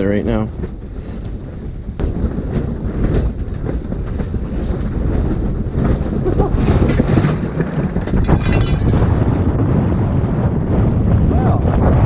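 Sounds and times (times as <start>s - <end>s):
strong gusting wind: 0.0s - 12.0s
short clattering: 2.3s - 9.5s.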